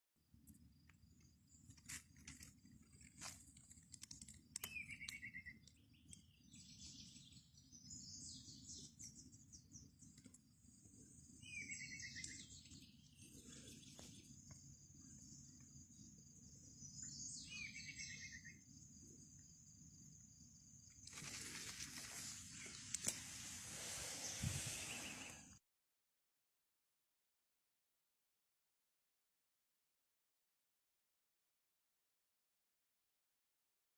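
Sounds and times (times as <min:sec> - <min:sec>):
faint clicks: 0:02.2 - 0:06.2
higher bird chirps: 0:04.6 - 0:18.7, 0:22.1 - 0:25.6.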